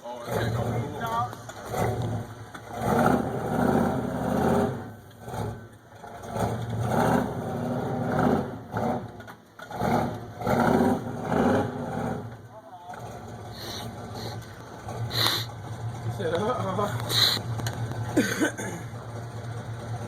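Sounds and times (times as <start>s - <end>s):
pickup truck engine revving: 0.1s - 20.0s.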